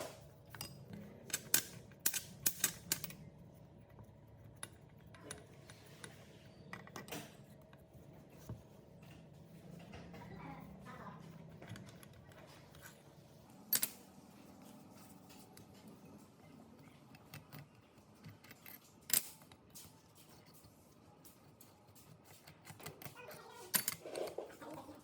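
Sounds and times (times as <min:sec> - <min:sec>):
clicks and taps on metal parts: 0:00.5 - 0:03.2, 0:17.1 - 0:24.0.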